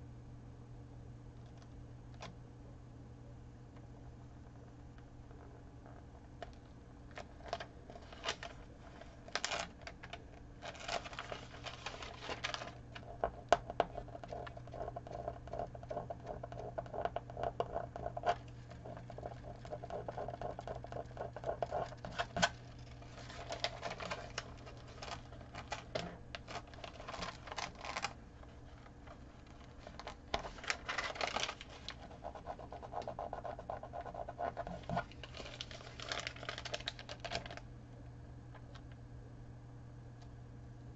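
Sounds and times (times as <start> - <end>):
steady low hum: 0.0 - 40.9
tape rustling and crinkling: 6.4 - 13.3, 18.2 - 32.1, 34.6 - 37.6.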